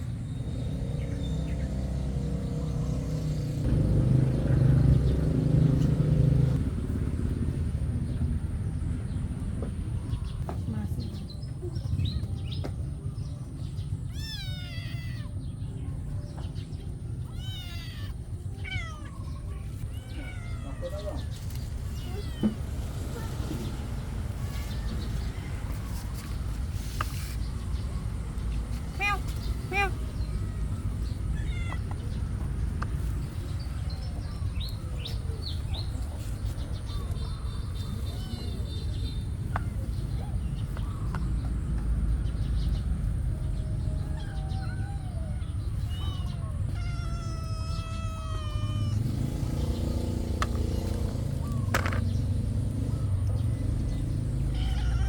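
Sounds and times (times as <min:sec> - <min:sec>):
cats meowing: 0:13.8 - 0:15.8, 0:16.5 - 0:26.3, 0:28.9 - 0:36.4, 0:37.0 - 0:40.5, 0:43.6 - 0:52.0, 0:54.1 - 0:55.0.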